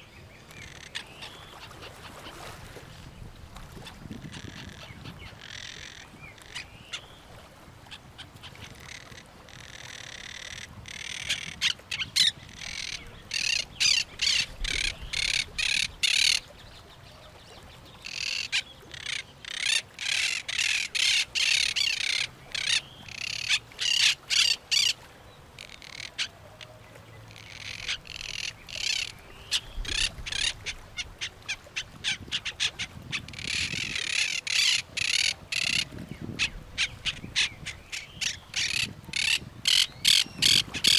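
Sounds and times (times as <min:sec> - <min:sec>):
birds squawking harshly: 0:08.2 - 0:16.4, 0:18.0 - 0:25.0, 0:27.4 - 0:40.9.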